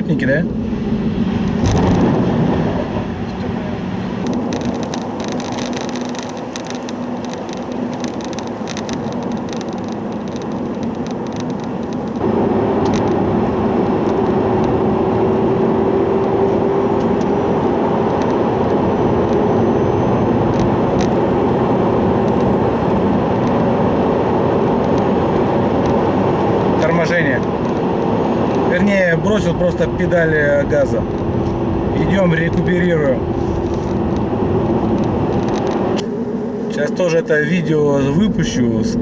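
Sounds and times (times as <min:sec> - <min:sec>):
loud hum inside moving car: 0:00.0 - 0:39.0
road noise: 0:00.0 - 0:39.0.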